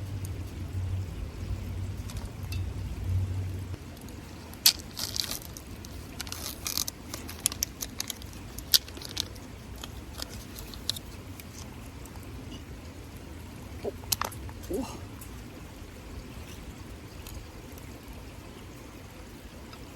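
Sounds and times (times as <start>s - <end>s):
wood fire crackling and popping: 3.6s - 12.6s.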